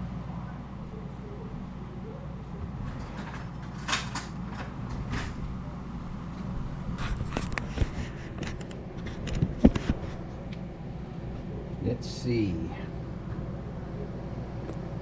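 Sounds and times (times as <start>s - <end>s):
steady low hum: 0.0s - 15.0s
kitchen clicks and clatters: 2.8s - 5.4s.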